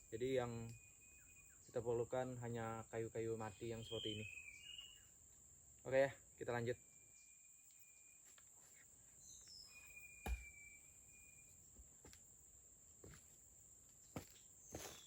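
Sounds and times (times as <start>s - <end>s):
dull thump: 10.2s - 10.6s.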